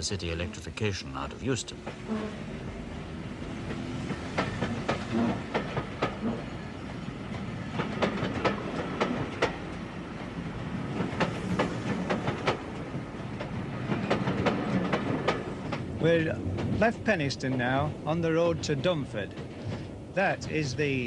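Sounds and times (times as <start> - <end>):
electric train rumbling: 0.0 - 21.0
wheels clicking over rail joints: 3.6 - 6.6, 7.3 - 20.8.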